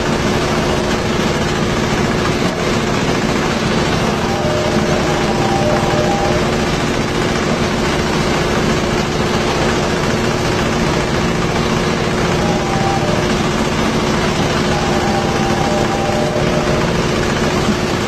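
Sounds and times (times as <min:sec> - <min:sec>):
husk-peeling machine running: 0:00.0 - 0:18.0.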